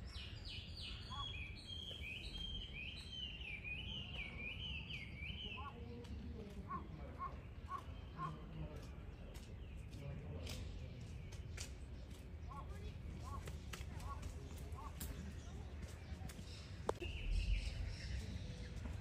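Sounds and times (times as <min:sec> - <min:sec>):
bird chirps: 0:00.0 - 0:14.2, 0:14.8 - 0:19.0
low outdoor rumble: 0:10.0 - 0:19.0.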